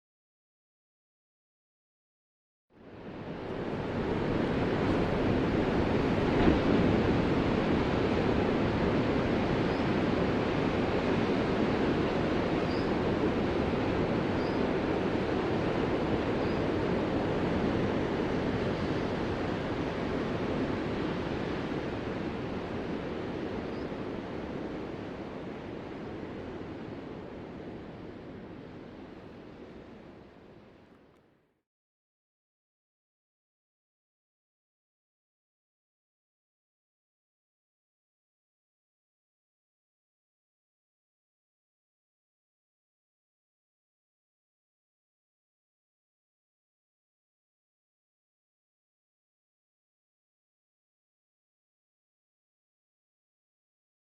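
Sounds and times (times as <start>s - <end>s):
breaking ocean waves roaring: 2.8s - 30.8s.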